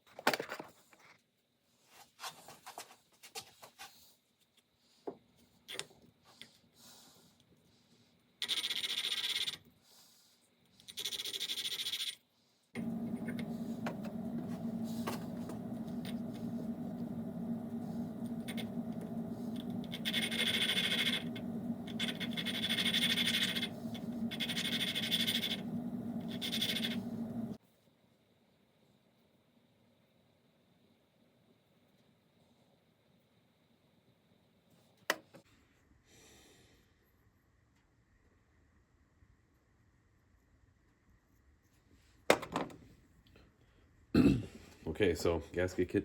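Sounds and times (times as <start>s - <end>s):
small motor humming: 12.8s - 27.6s.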